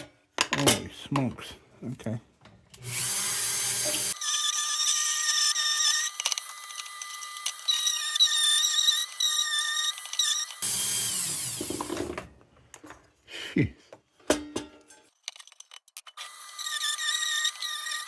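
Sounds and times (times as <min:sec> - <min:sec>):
rotary tool whining on metal: 0:02.8 - 0:12.2, 0:15.2 - 0:18.0.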